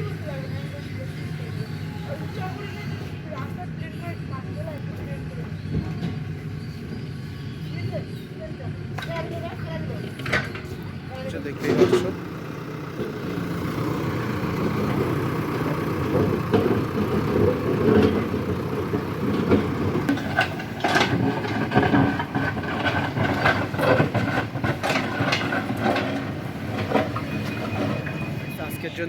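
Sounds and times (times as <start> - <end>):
diesel engine running: 0.0 - 29.0
metal clanks and knocks: 9.0 - 28.5
machine squealing: 14.5 - 29.0.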